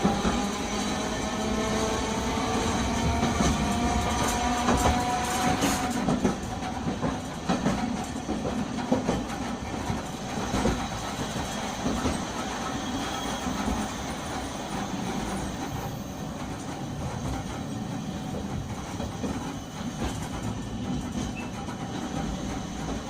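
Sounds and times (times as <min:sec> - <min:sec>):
tram motor whine: 0:00.0 - 0:07.0
wheels clacking over rail joints: 0:02.4 - 0:23.0.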